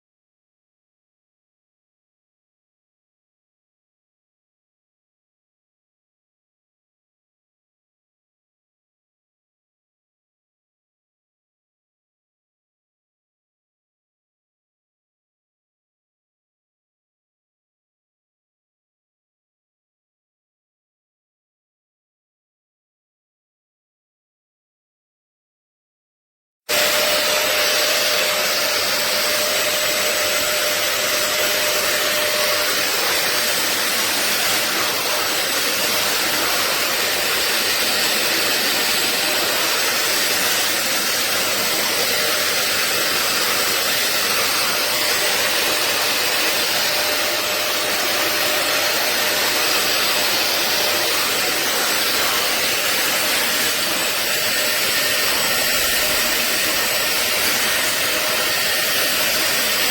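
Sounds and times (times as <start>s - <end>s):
vacuum cleaner suction motor: 26.7s - 59.9s.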